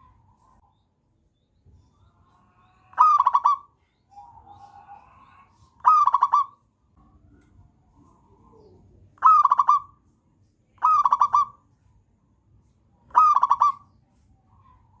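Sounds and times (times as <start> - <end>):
dove cooing: 2.9 - 6.6, 8.2 - 10.0, 10.8 - 11.6, 13.1 - 13.9.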